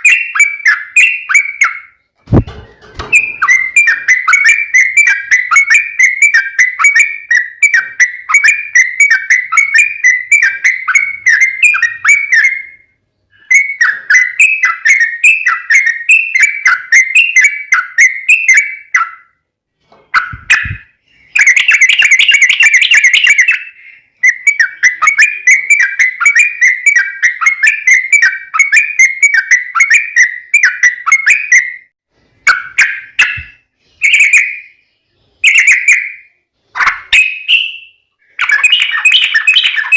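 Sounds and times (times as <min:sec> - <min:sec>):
bulbul singing bubbly whistles: 0:20.2 - 0:31.8, 0:37.1 - 0:39.9.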